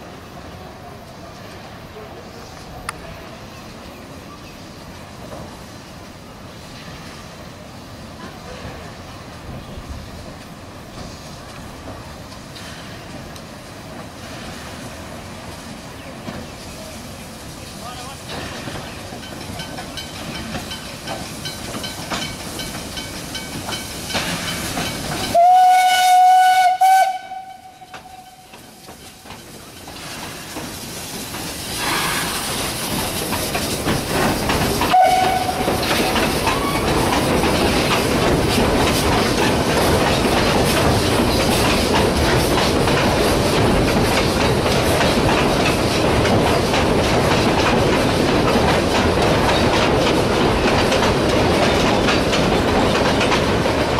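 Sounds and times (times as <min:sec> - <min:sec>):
steam hissing: 0:00.0 - 0:53.9
train rumble: 0:00.0 - 0:53.9
wheels clicking over rail joints: 0:17.8 - 0:53.9
steam locomotive whistle: 0:25.3 - 0:28.5, 0:34.9 - 0:35.8.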